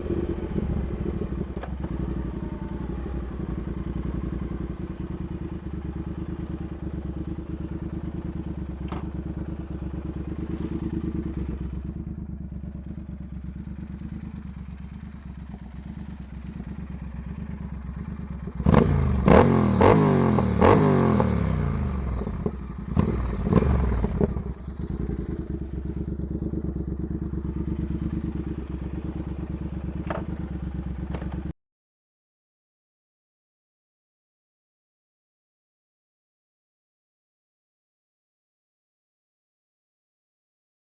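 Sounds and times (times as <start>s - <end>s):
motorcycle engine idling and revving: 0.0s - 31.6s.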